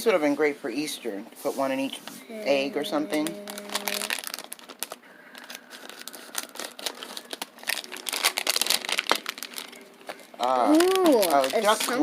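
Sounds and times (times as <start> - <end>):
plastic bag crinkling and tearing: 3.1 - 12.0.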